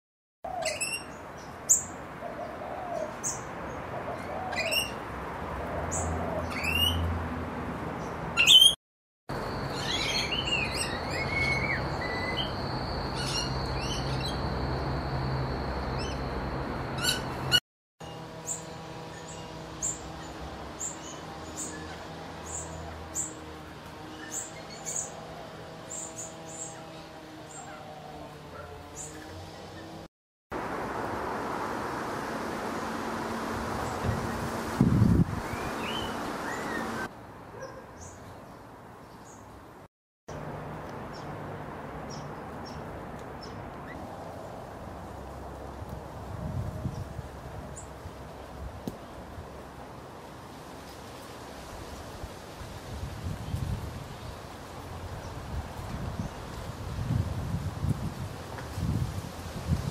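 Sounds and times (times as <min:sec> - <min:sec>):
parrots chirping: 0:08.4 - 0:08.8, 0:09.6 - 0:14.5, 0:17.0 - 0:17.6.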